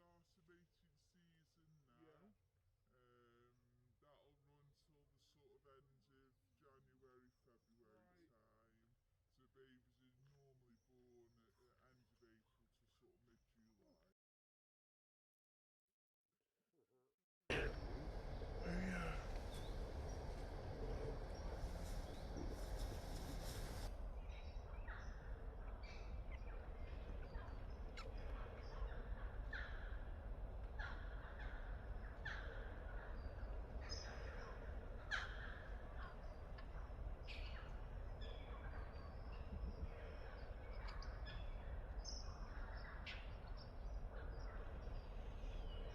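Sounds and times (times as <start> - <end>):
low rumble: 17.5 - 24.7
birds calling: 17.5 - 45.9.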